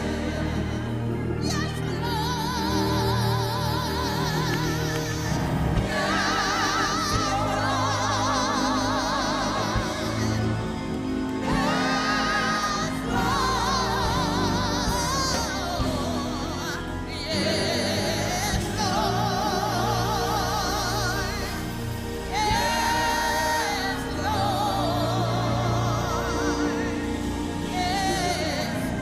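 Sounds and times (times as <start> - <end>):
gospel singing with vibrato: 0.0 - 29.0
sustained organ chords: 0.0 - 29.0.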